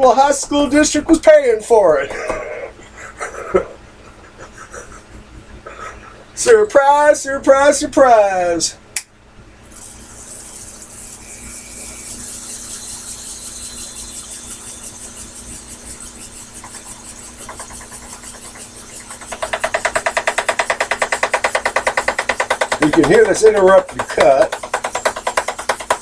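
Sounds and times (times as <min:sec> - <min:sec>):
lathe humming: 0:09.8 - 0:26.0
lathe tool tapping workpiece: 0:16.6 - 0:26.0.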